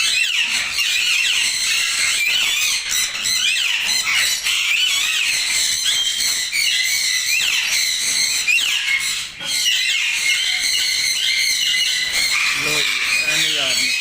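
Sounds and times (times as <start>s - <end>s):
parrots squawking and chirping: 0.0s - 14.0s.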